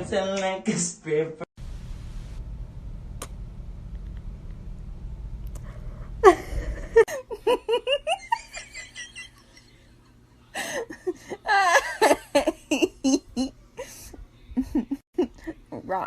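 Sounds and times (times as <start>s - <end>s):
person laughing: 6.2s - 9.9s, 10.6s - 15.7s.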